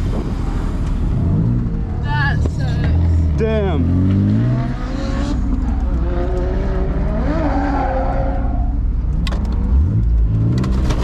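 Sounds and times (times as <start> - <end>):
car engine revving: 0.0 - 11.0
tires squealing: 3.6 - 8.9.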